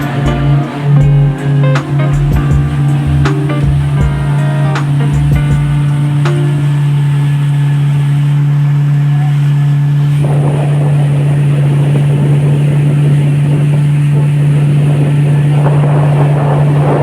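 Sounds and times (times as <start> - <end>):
motorboat engine humming: 0.0 - 17.0
rush of water and wind: 10.1 - 17.0.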